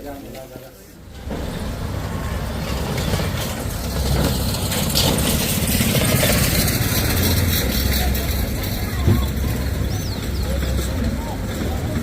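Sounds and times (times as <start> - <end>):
engine and road noise rumble: 0.0 - 12.0.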